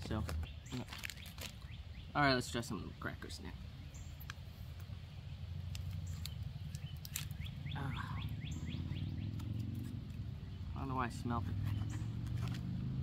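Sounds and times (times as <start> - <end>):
bird chirping: 0.0 - 12.8
pouch crackling: 0.3 - 1.7, 5.7 - 7.6.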